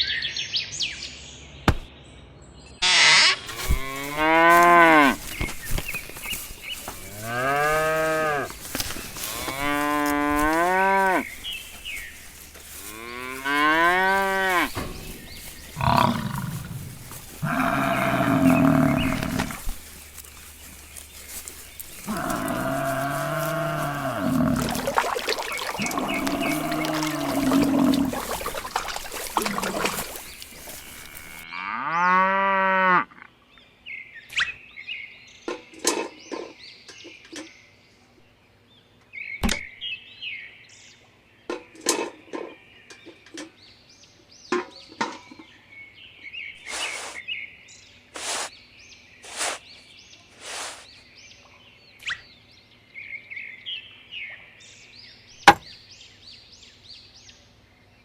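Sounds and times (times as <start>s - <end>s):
cow mooing: 2.8s - 5.3s, 6.9s - 11.8s, 12.6s - 19.7s, 22.0s - 33.3s
brief hissing strokes: 46.6s - 47.2s, 48.2s - 48.5s, 49.3s - 49.7s, 50.4s - 50.9s.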